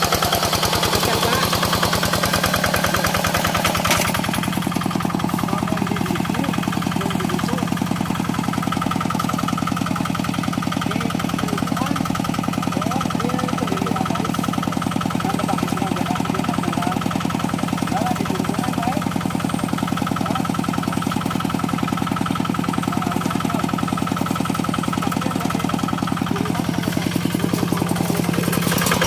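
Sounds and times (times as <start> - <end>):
diesel engine chugging: 0.0 - 29.0.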